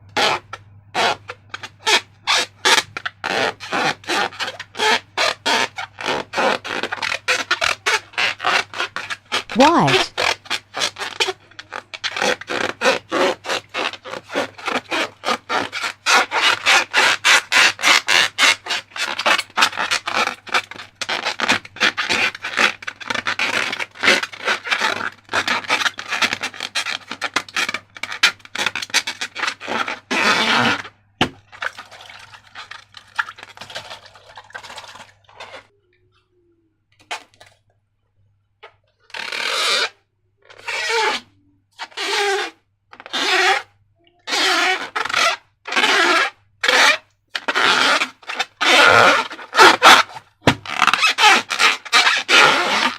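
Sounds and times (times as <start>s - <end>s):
slime scraping strokes: 1.9s - 11.4s.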